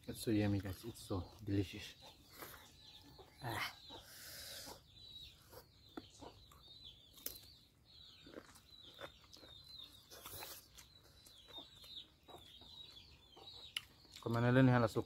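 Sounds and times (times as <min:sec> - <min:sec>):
faint bird chirps: 0:00.0 - 0:15.0
wet chewing and lip-smacking: 0:05.2 - 0:14.4.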